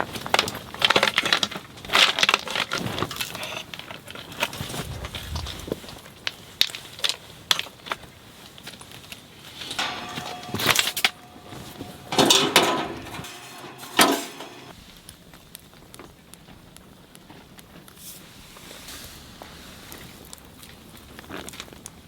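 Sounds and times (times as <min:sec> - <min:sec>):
rustling and clattering: 0:00.2 - 0:14.8.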